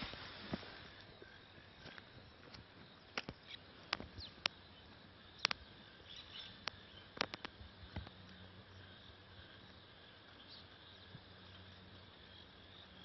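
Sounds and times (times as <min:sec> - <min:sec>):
insect hiss: 0:00.0 - 0:13.0
faint bird chirps: 0:01.0 - 0:13.0.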